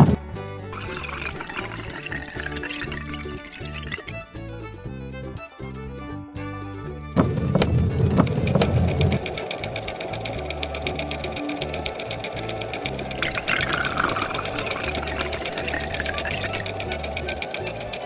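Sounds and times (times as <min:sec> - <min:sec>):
background music: 0:00.0 - 0:18.0
machine mechanical clatter: 0:07.2 - 0:13.1.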